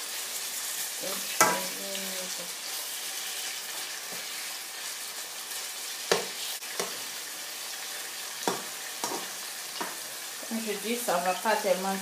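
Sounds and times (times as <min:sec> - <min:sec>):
seafood sizzling in a frying pan: 0:00.0 - 0:12.0
spatula knocking and scraping pan: 0:01.4 - 0:01.7, 0:06.1 - 0:07.0, 0:08.4 - 0:10.1.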